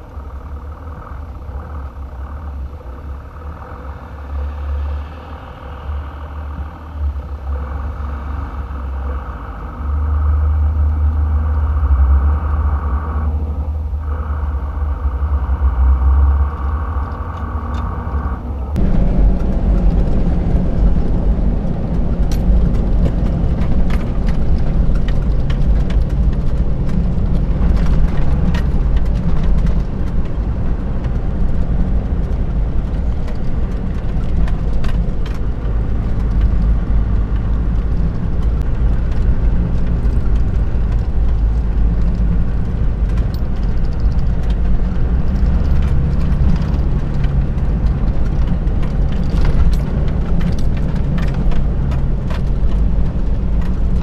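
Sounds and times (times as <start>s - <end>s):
car engine drone and road noise: 0.0s - 54.0s
knocks and rattles: 18.7s - 54.0s.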